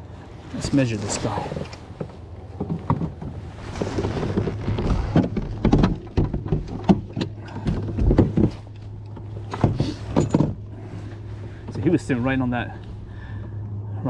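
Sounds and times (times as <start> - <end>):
steady low hum: 0.0 - 14.0
fish flopping against plastic kayak: 1.3 - 11.7.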